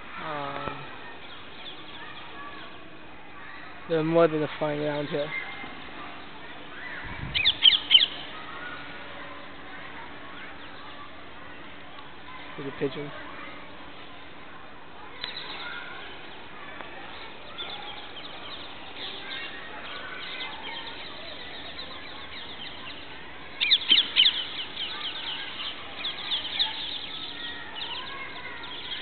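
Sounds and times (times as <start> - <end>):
parrots chirping: 7.4 - 8.3.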